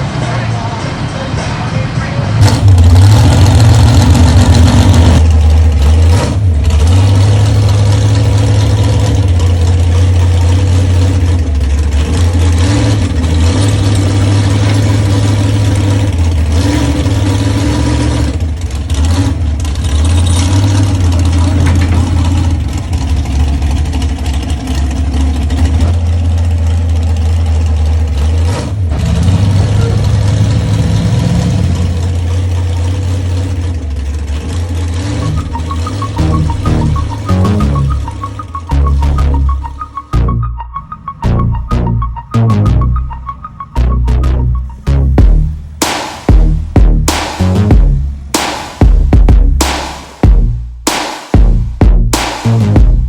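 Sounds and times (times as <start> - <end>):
truck engine rumbling: 0.0 - 53.0.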